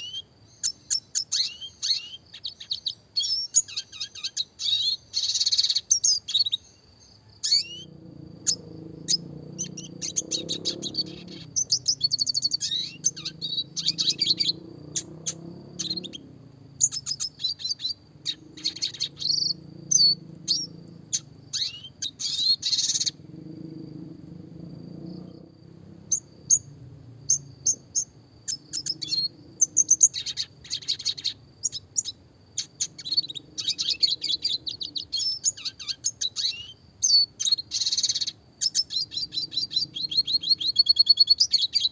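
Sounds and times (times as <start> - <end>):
bird trills and chirps: 0.0 - 41.9
faint low rumble: 7.3 - 31.0.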